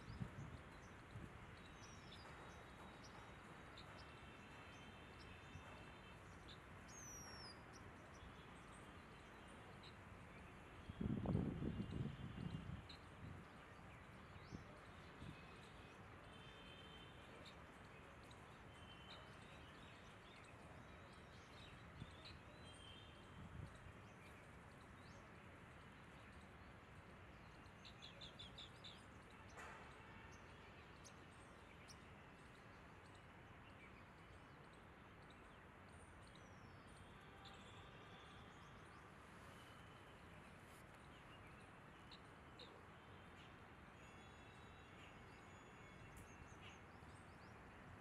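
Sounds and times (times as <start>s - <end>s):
outdoor background hiss: 0.0s - 48.0s.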